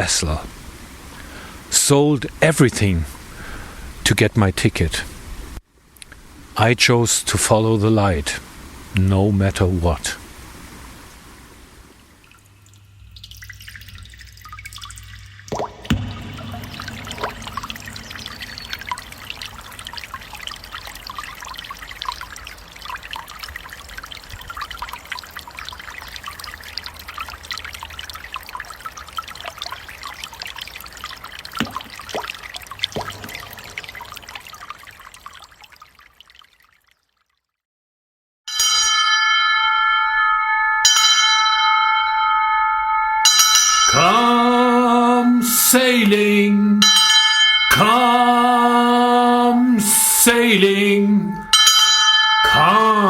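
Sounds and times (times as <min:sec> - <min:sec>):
water trickling and dripping: 0:00.0 - 0:37.6, 0:43.4 - 0:53.0
bell ringing: 0:15.9 - 0:20.0, 0:38.5 - 0:53.0.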